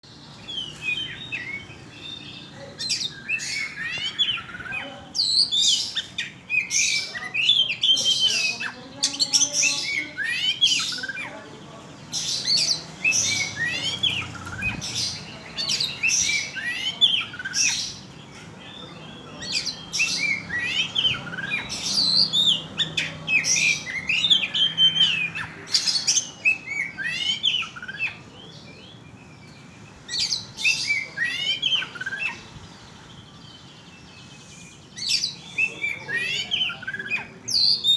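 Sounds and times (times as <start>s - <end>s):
bird singing whistles and chirps: 0.3s - 11.2s, 18.7s - 37.9s.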